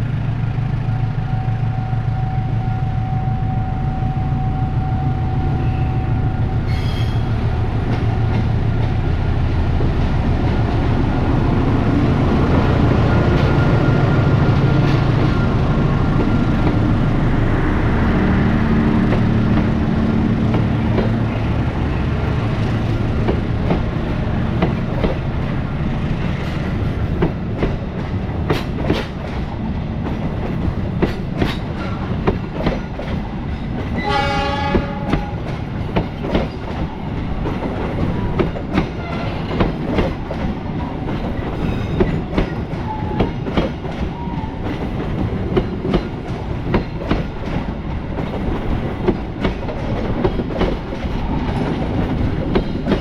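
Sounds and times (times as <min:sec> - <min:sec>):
train wheels clacking on rails: 0:06.2 - 0:53.0
train horn: 0:34.0 - 0:35.5, 0:39.0 - 0:39.6.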